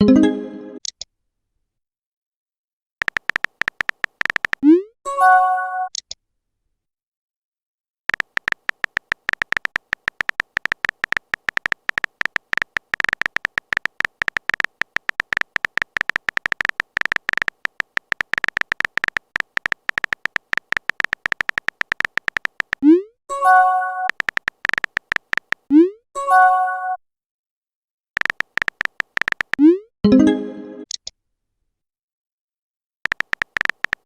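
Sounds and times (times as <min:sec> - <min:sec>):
rapid keypress typing clicks: 0:03.0 - 0:04.6, 0:08.1 - 0:22.8, 0:24.0 - 0:25.7, 0:28.2 - 0:29.6, 0:33.1 - 0:34.0.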